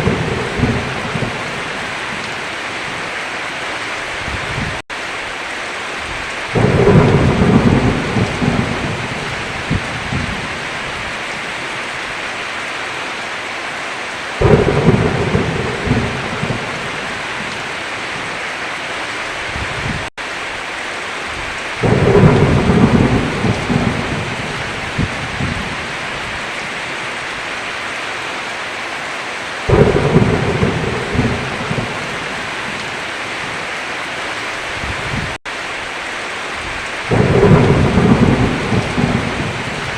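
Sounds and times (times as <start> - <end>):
thunder rumbling: 0.0 - 2.4, 6.1 - 11.5, 14.4 - 18.3, 21.4 - 26.4, 29.7 - 33.6, 36.6 - 39.9
heavy rain falling: 0.0 - 39.9.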